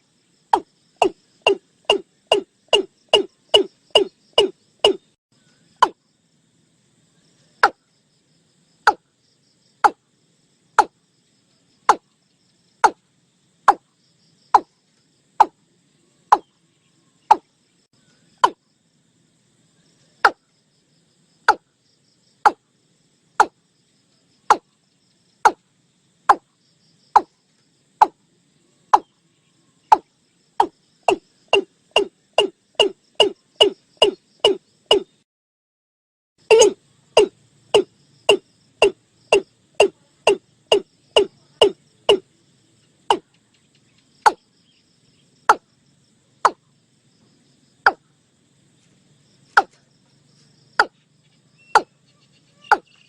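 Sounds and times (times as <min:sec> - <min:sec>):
bird calling hollow notes: 0:00.5 - 0:05.2, 0:17.3 - 0:17.5, 0:18.4 - 0:18.6, 0:29.9 - 0:35.2, 0:36.5 - 0:42.2, 0:51.6 - 0:51.9, 0:52.6 - 0:53.0.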